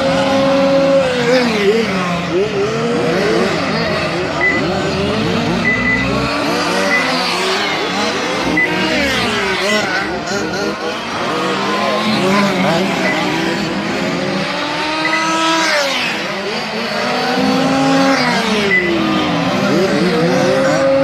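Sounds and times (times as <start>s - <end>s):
model car engines revving: 0.0s - 21.0s
short high beeps: 4.4s - 4.7s, 5.4s - 7.2s, 15.0s - 15.4s.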